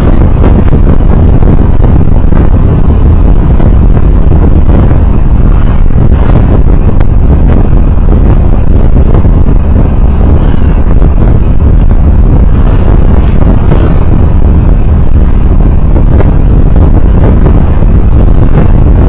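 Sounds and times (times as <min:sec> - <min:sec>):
vehicle rumbling on road: 0:00.0 - 0:19.0.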